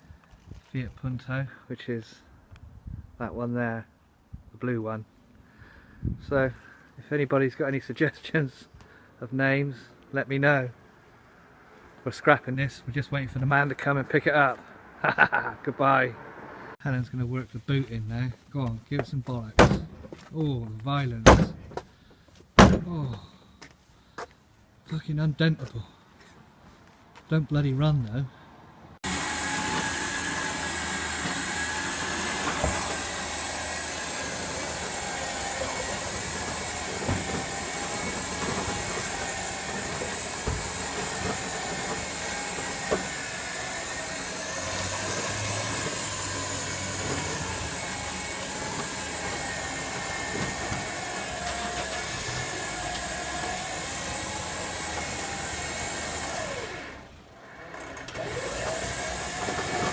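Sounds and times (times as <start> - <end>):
sharp knocks: 19.6 - 20.2.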